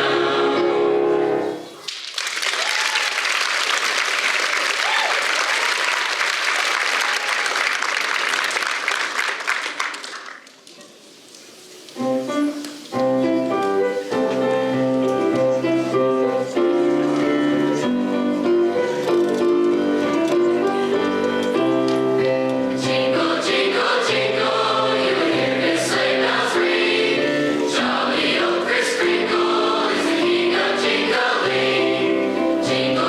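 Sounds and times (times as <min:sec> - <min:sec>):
piano playing chords: 0:00.0 - 0:01.7, 0:12.0 - 0:33.0
audience applauding: 0:01.8 - 0:10.6.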